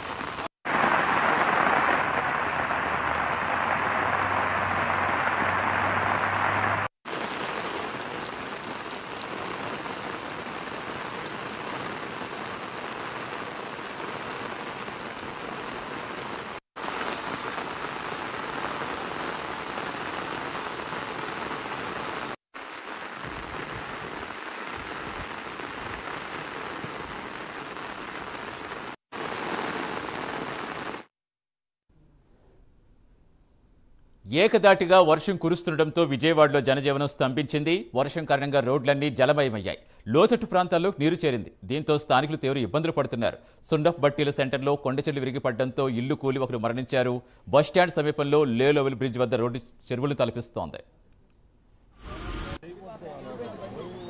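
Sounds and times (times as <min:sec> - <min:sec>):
heavy rain pouring: 0:00.0 - 0:31.1.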